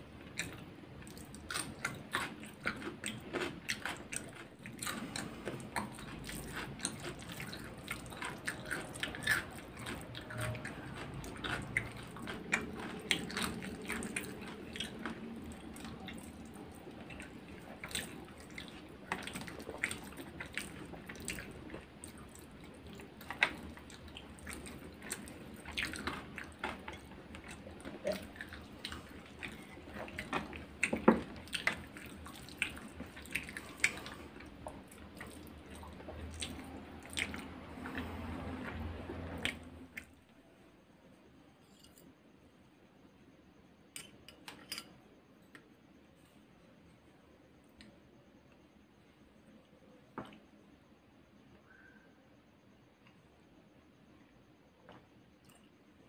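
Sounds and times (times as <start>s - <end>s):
wet chewing and lip-smacking: 0.3s - 40.2s.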